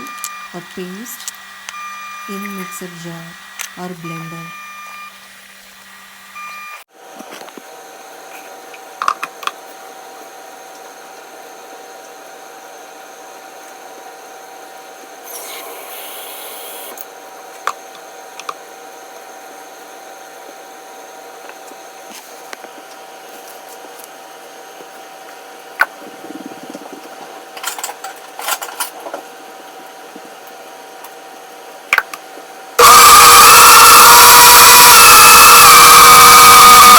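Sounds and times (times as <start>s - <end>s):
kitchen appliance humming: 32.8s - 36.9s.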